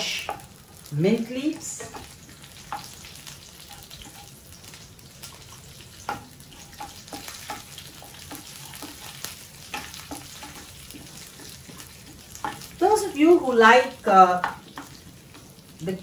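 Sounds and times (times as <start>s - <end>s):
spices sizzling in hot oil: 0.0s - 16.0s
wooden spatula knocking pan: 6.0s - 13.4s, 14.4s - 15.5s.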